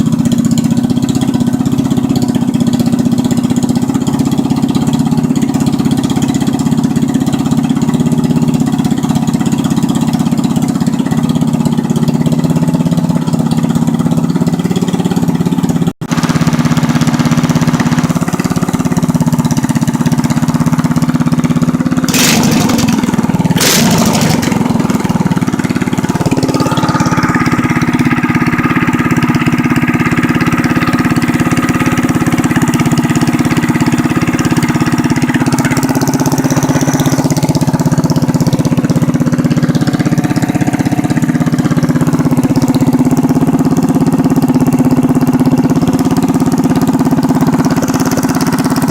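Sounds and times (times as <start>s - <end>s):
small engine running: 22.1s - 25.2s, 25.8s - 35.1s.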